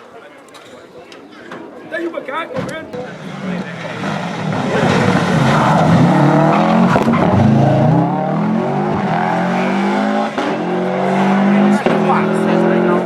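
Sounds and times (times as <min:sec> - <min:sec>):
rally car engine accelerating: 0:03.0 - 0:13.0.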